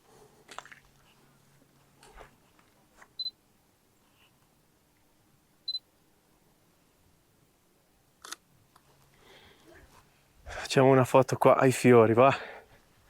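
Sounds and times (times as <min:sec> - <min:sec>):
soft camera clicks: 0:08.2 - 0:08.9.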